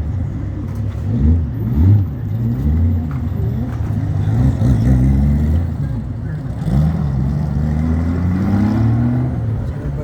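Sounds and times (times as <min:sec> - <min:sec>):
vehicle engine revving: 0:04.0 - 0:10.0.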